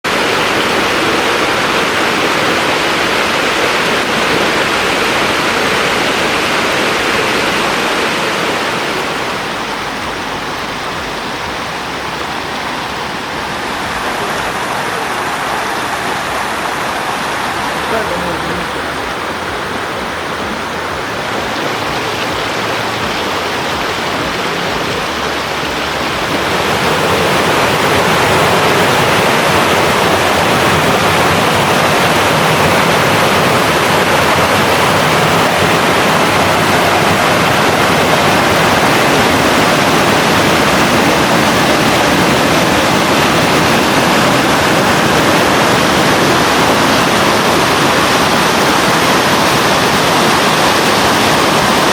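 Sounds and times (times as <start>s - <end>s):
mountain stream rushing: 0.0s - 51.9s.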